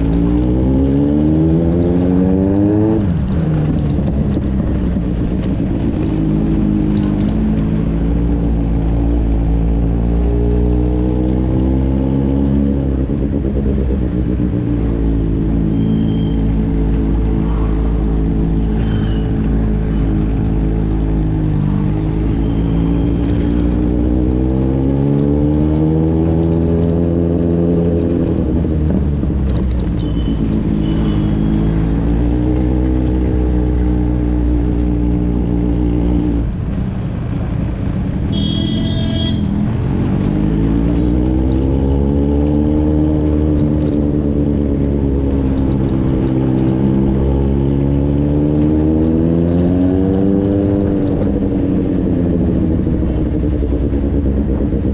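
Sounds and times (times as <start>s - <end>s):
motorcycle engine running: 0.0s - 11.9s, 12.5s - 54.9s
vehicle horn: 30.0s - 31.7s, 38.3s - 39.6s.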